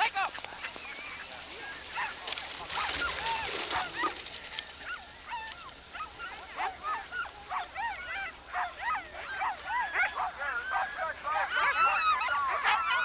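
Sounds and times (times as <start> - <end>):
dogs barking and yipping: 0.4 - 13.0.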